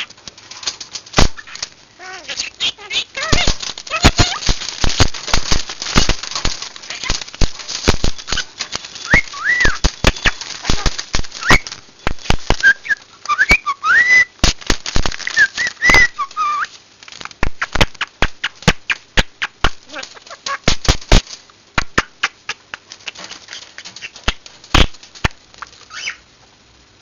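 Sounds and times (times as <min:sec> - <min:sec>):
birds clicking and tapping: 0:00.0 - 0:26.2
birds whistling calls: 0:08.1 - 0:14.4, 0:15.2 - 0:16.7, 0:25.9 - 0:26.2.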